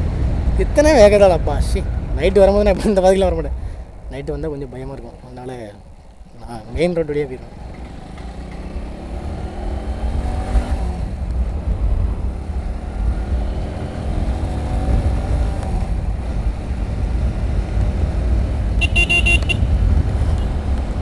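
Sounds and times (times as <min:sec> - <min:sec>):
wind on microphone: 0:00.0 - 0:04.8, 0:09.2 - 0:21.0
motorcycle engine running: 0:00.0 - 0:21.0.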